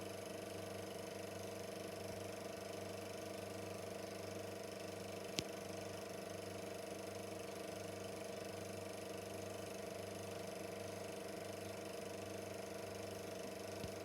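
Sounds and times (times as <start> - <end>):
film projector running: 0.0 - 14.0.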